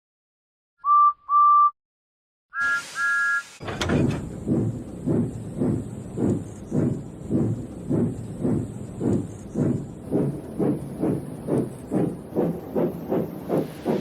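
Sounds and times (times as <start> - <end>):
steam locomotive whistle toots: 2.6 - 3.6
rush of steam: 2.6 - 4.0, 12.4 - 14.0
steam engine chuffing: 3.6 - 14.0.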